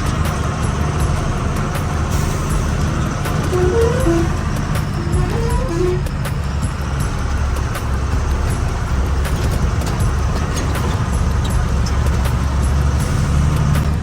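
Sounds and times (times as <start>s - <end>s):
small rattles and knocks: 0.0s - 14.0s
truck engine and road drone: 0.0s - 14.0s.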